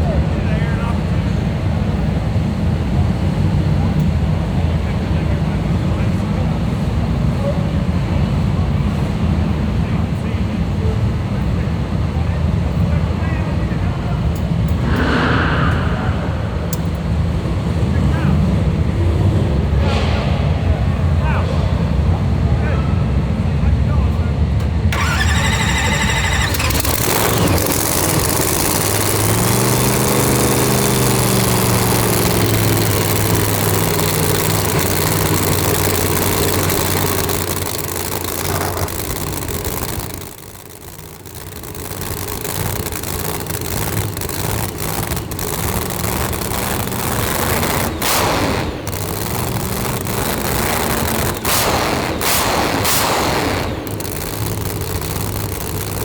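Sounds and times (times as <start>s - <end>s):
race car engine idling: 20.7s - 56.0s
engine pops and cracks: 24.6s - 56.0s.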